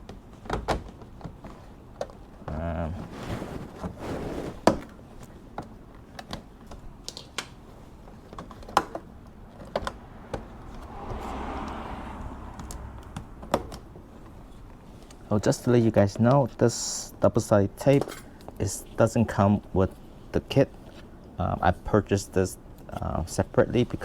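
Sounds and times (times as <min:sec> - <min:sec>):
soft rubbing: 0:02.9 - 0:04.7.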